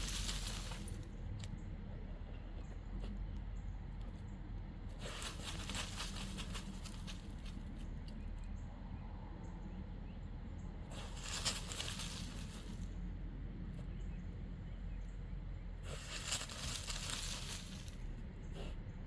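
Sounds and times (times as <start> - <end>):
dog scratching in dirt: 0.0 - 1.1, 4.9 - 7.9, 10.9 - 12.9, 15.8 - 18.8
soil pattering down: 0.0 - 1.1, 5.0 - 7.6, 10.9 - 12.8, 15.8 - 18.1.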